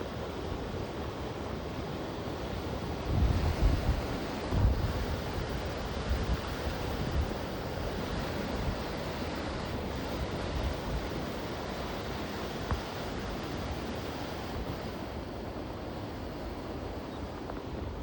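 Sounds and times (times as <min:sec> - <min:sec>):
wind gusting against microphone: 0:00.0 - 0:18.0.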